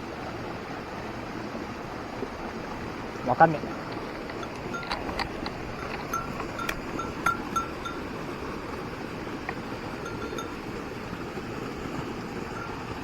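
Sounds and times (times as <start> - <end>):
mountain stream rushing: 0.0 - 13.0
small bell jingling: 3.6 - 8.2, 9.5 - 11.0.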